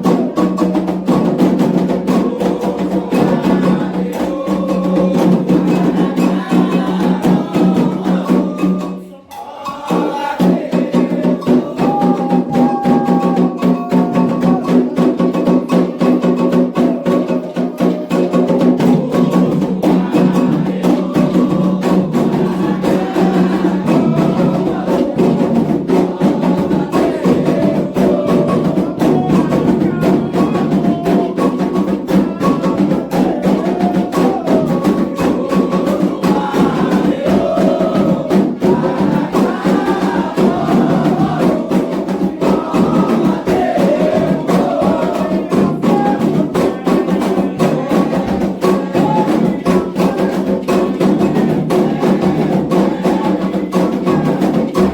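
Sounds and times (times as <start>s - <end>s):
hand drums fast rhythm: 0.0s - 54.9s
voices singing: 0.0s - 54.9s.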